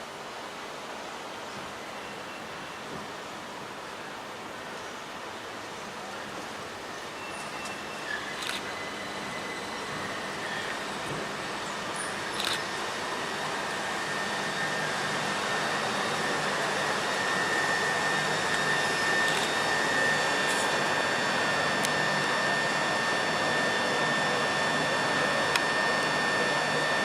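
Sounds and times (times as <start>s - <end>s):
high steady whine: 0.0s - 27.0s
train rushing noise: 6.4s - 27.0s.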